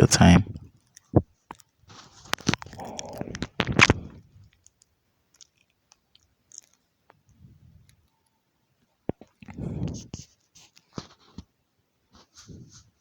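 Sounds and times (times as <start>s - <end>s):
crunchy handling with sharp clicks: 0.6s - 7.3s
faint scattered ticks: 0.6s - 11.6s.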